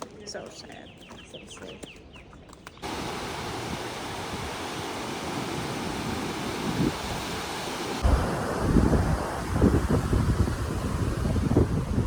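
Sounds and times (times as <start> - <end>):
ocean surf rushing: 2.8 - 12.0
wind on microphone: 2.8 - 12.0.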